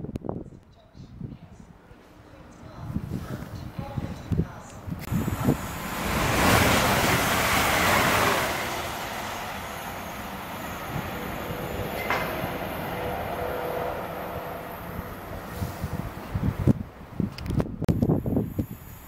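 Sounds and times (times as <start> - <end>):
train wheels rushing on rails: 5.1 - 16.8.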